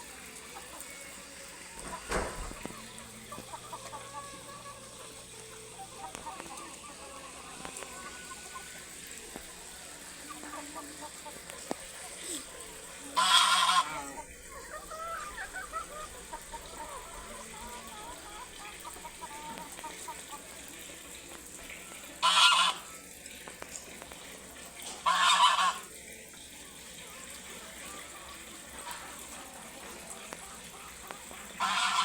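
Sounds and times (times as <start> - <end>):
loud harsh bird calls: 10.2 - 19.5.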